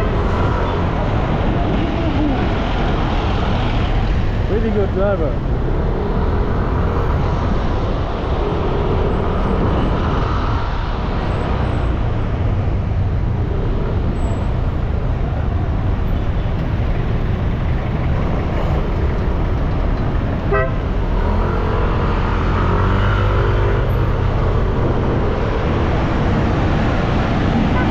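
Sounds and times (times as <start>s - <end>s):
traffic rumble and road noise: 0.0s - 27.9s
vehicle horns tooting: 20.4s - 20.9s.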